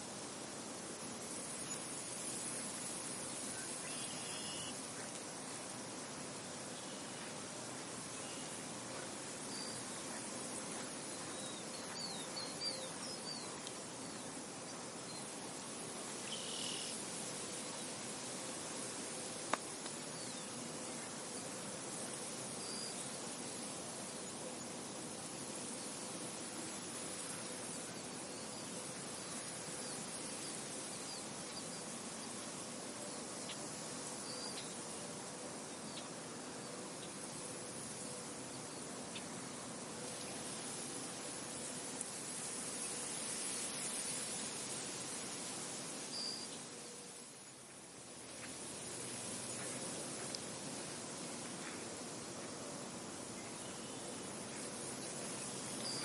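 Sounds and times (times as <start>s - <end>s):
soft wind: 0.0s - 56.0s
small birds chirping: 8.2s - 15.4s.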